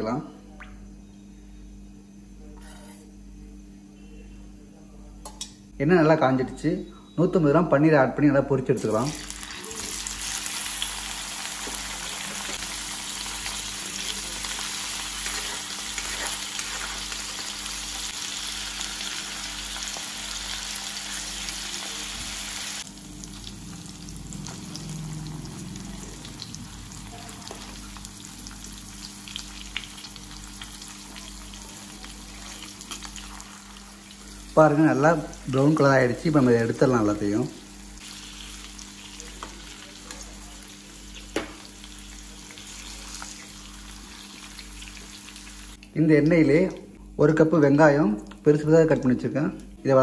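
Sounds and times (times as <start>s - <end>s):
paneer sizzling in hot oil: 8.8s - 45.8s.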